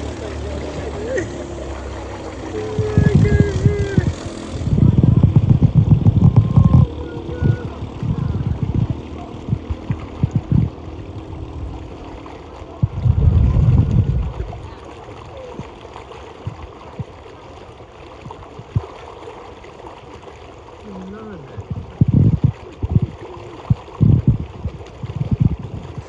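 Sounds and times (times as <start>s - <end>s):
loud low rumbles: 0.0s - 12.2s, 12.8s - 14.7s
floodwater running and gurgling: 0.0s - 26.0s.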